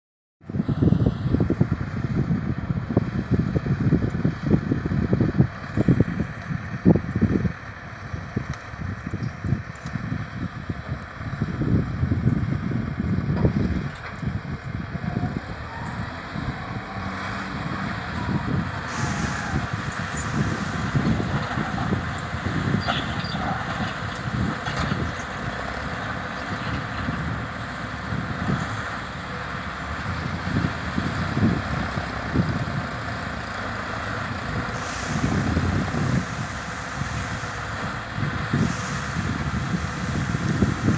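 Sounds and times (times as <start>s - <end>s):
wind buffeting microphone: 0.4s - 40.9s
tractor diesel engine running: 0.5s - 40.9s
hiss: 18.8s - 21.0s, 34.8s - 37.9s, 38.6s - 40.9s.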